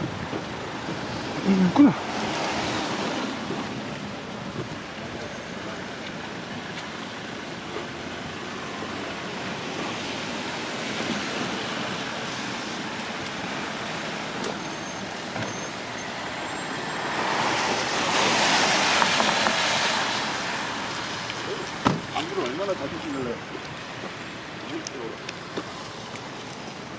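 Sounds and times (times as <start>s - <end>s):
traffic on wet roads: 0.0s - 26.9s.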